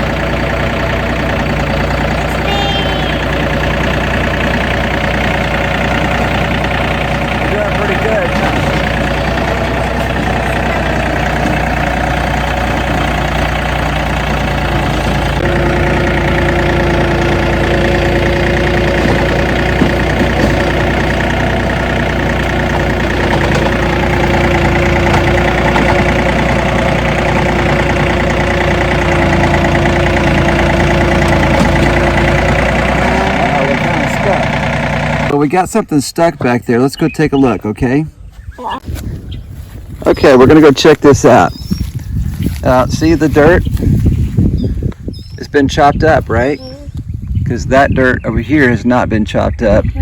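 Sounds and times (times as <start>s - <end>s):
rotary tiller in ground: 0.0s - 35.4s
tractor engine running: 0.0s - 38.0s, 38.8s - 48.9s.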